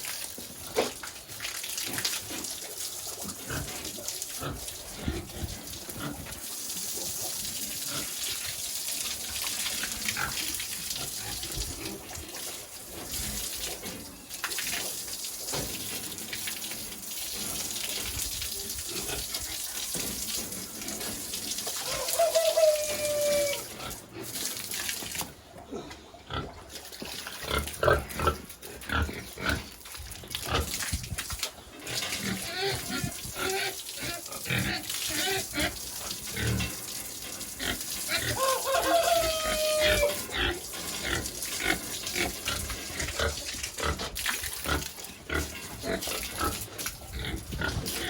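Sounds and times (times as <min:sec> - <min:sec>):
pigs grunting: 0:03.3 - 0:06.4, 0:27.4 - 0:29.8, 0:37.5 - 0:48.0.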